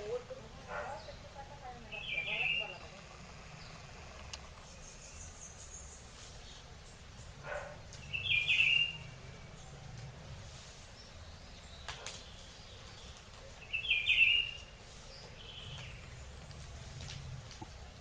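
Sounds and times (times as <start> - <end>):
high chirping calls: 0.0 - 9.7, 11.0 - 16.2
sharp clicks: 2.8 - 4.7.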